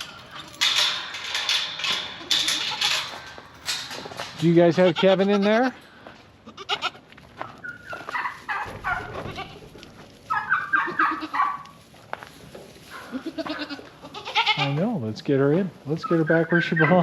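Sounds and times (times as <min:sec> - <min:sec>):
turkey calling: 0:07.4 - 0:09.1, 0:10.3 - 0:11.6, 0:15.9 - 0:17.0.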